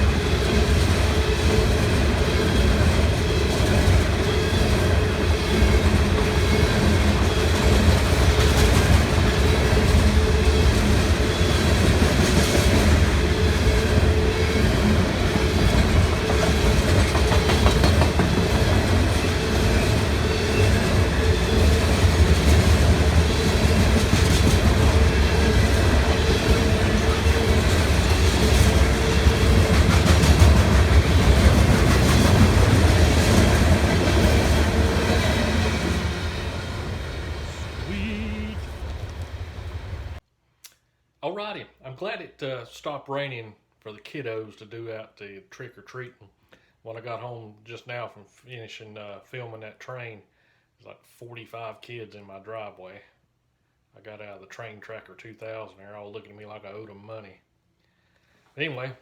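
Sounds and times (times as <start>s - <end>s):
train wheels clicking over rail joints: 0.0s - 37.5s
low train rumble: 0.0s - 40.2s.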